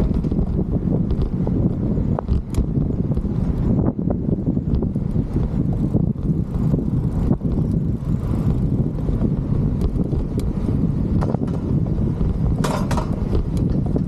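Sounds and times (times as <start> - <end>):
bicycle clicks and rattles: 0.0 - 14.0
road noise: 0.0 - 14.0
wind buffeting microphone: 0.0 - 14.0.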